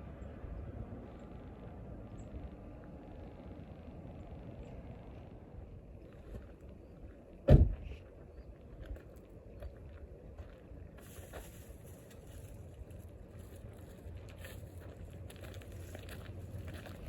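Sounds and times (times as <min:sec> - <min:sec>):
low outdoor rumble: 0:00.0 - 0:17.0
loud sharp thump: 0:07.5 - 0:07.9.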